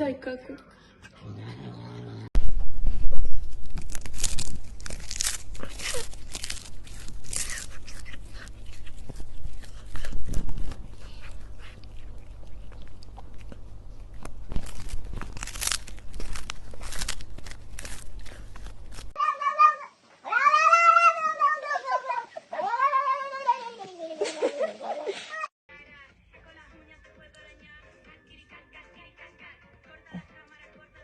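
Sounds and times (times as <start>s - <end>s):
crunching and crackling: 2.5s - 19.2s.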